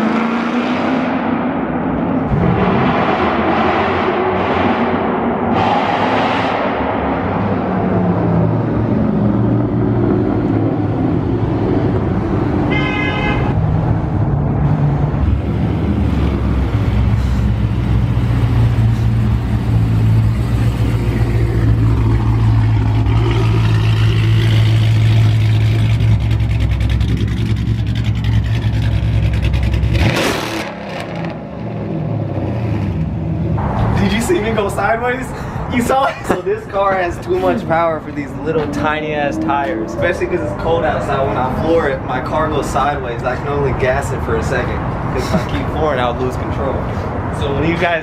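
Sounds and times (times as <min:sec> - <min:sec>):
loud car exhaust drone: 0:00.0 - 0:34.0
car horn blast: 0:12.7 - 0:13.6.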